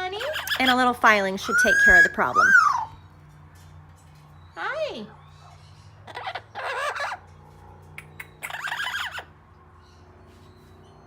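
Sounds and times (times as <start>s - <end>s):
parrot calling: 0.0s - 3.1s, 5.1s - 7.4s, 8.0s - 9.4s.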